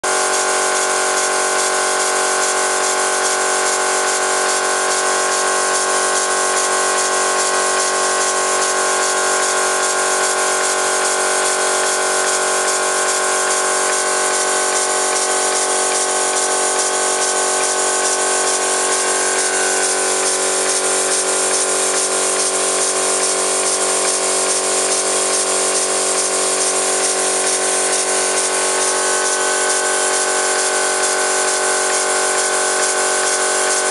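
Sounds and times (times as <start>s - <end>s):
steam engine running: 0.0s - 33.9s.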